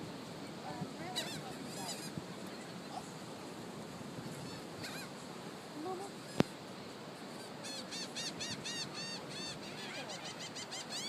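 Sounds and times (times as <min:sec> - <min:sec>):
seagulls calling: 0:00.4 - 0:03.1, 0:04.3 - 0:05.2, 0:07.3 - 0:11.0.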